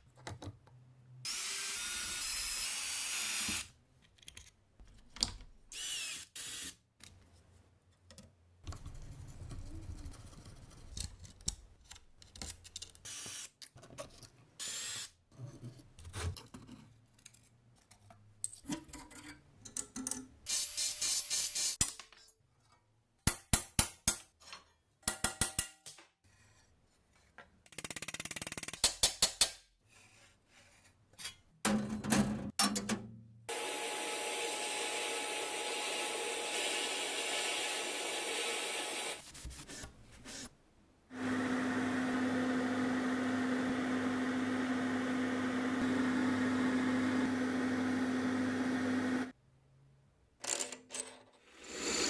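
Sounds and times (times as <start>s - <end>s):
power tool running: 33.5s - 39.2s, 41.1s - 49.3s.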